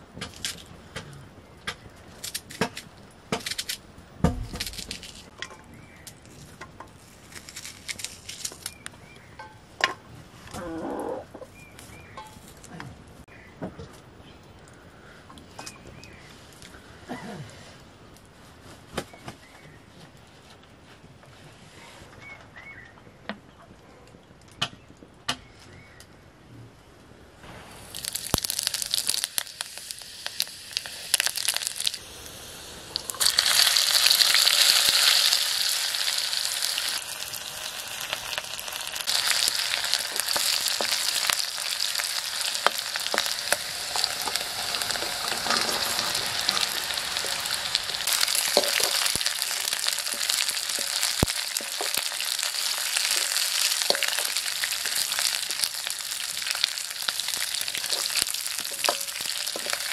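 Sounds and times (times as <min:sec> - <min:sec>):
oil popping and crackling: 0:00.0 - 0:13.5, 0:27.5 - 0:59.9
onion and garlic sizzling in oil: 0:01.8 - 0:10.0, 0:27.4 - 0:59.9
ladle scraping wok: 0:39.1 - 0:59.9.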